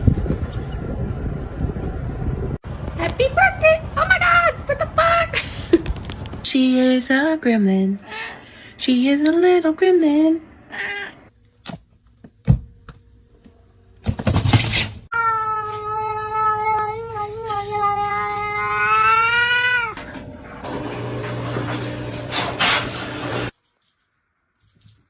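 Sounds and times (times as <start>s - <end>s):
cat yowling: 10.7s - 11.2s, 15.1s - 20.0s.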